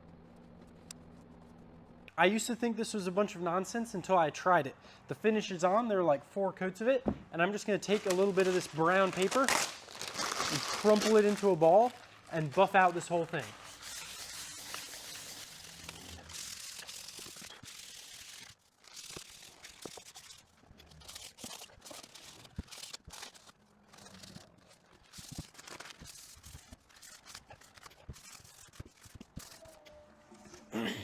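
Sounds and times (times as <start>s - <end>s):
paper crinkles and small clicks: 7.6s - 30.7s
paper rubbing on wooden tray: 7.8s - 29.8s.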